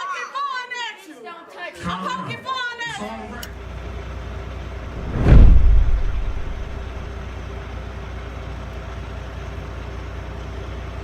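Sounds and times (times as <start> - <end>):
vehicle engine rumble: 4.9 - 7.0
loud low thump: 5.0 - 7.0.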